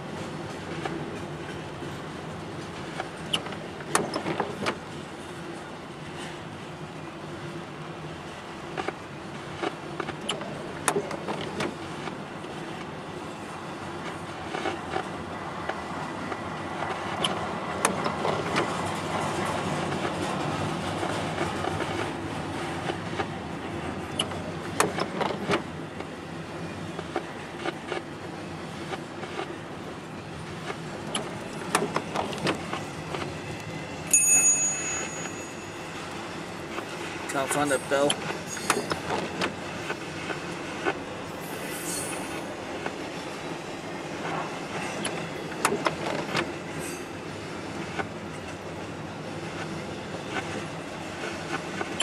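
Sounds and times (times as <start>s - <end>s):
freight train rolling on rails: 0.0s - 52.0s
wheels clicking and banging: 34.1s - 40.4s
high metallic squeal: 37.7s - 39.0s, 41.4s - 42.4s.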